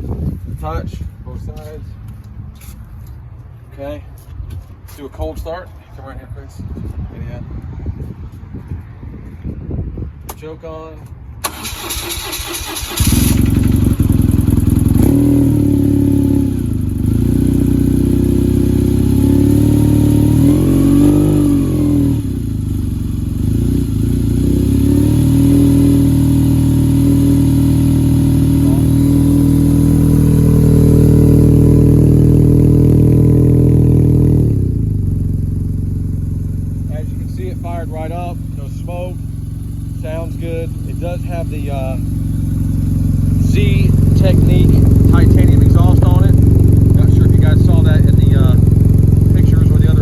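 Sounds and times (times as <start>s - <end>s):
motorcycle engine idling and revving: 11.0s - 50.0s
starter motor cranking: 11.4s - 14.2s.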